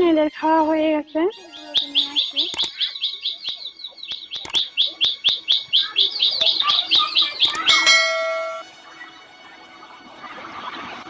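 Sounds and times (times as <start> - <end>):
small bird chirping: 1.0 - 8.6
click: 2.5 - 2.8, 4.4 - 4.6, 7.4 - 7.7
bell-like ding: 7.5 - 8.6.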